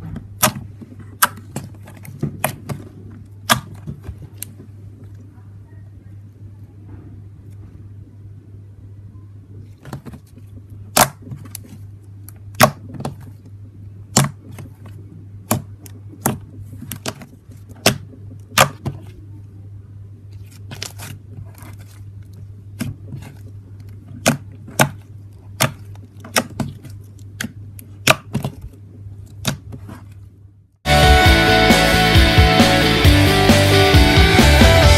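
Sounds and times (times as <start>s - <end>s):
low steady hum: 0.0s - 34.9s
loud music: 30.9s - 34.9s.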